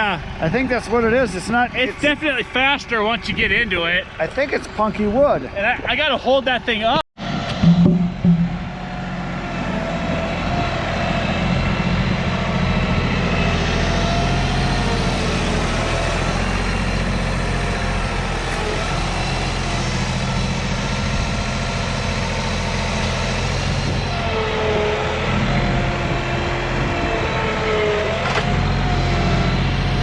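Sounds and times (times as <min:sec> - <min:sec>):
chainsaw cutting through log: 0:13.9 - 0:21.5.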